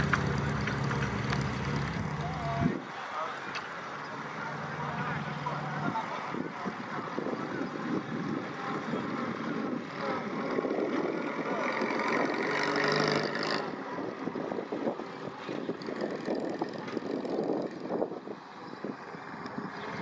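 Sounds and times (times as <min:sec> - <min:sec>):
car engine running with rattly beat: 0:00.0 - 0:02.7.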